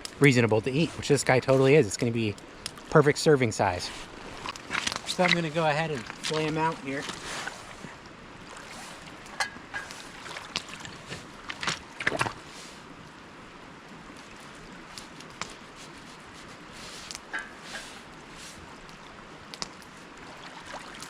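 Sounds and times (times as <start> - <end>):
water lapping around rocks: 0.0 - 13.2, 14.0 - 21.0.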